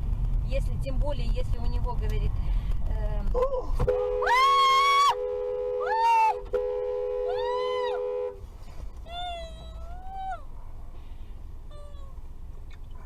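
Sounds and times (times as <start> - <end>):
car horn blaring: 3.8 - 8.4.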